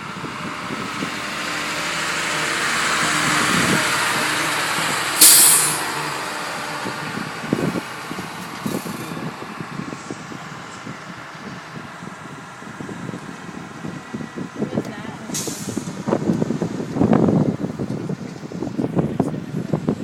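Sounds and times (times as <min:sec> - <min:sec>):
large truck passing: 0:00.0 - 0:20.0
air brake hiss: 0:05.2 - 0:05.9, 0:15.4 - 0:16.0.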